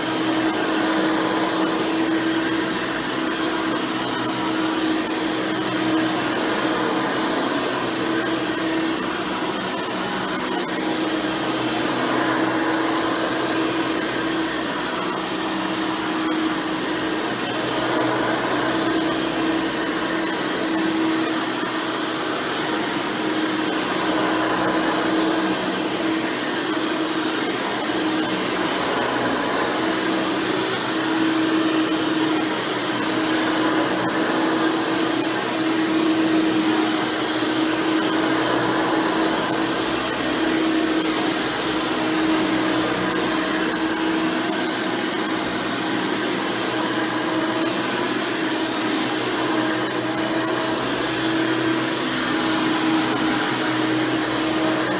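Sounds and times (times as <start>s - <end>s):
upright vacuum cleaner running: 0.0s - 54.9s.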